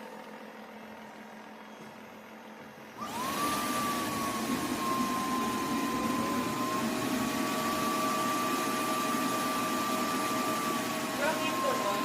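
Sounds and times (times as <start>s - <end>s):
lower motor tone: 0.0s - 12.0s
vacuum motor whining and hissing: 2.9s - 12.0s.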